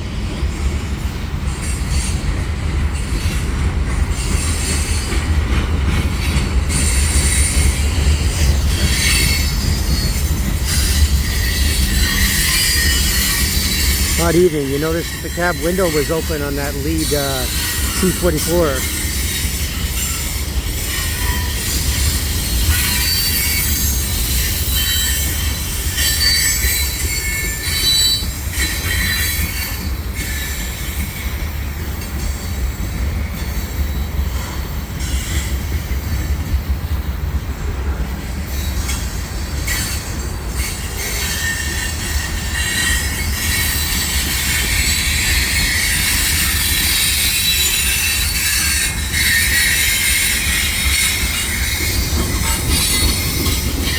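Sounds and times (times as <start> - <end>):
freight train rumbling: 0.0 - 53.9
rail joint clicks: 37.7 - 53.9.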